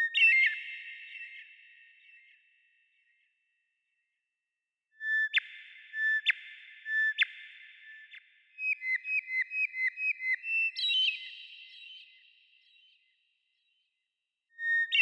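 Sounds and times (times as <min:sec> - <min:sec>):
bird whistling song: 0:00.0 - 0:02.4, 0:05.0 - 0:13.1, 0:14.6 - 0:15.0.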